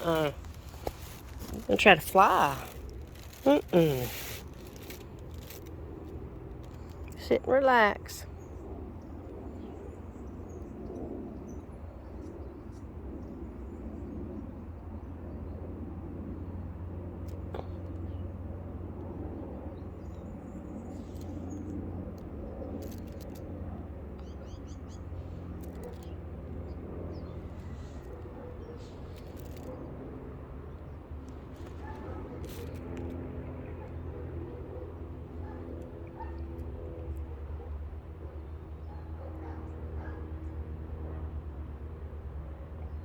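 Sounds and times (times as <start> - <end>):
steady low rumble: 0.0 - 33.8.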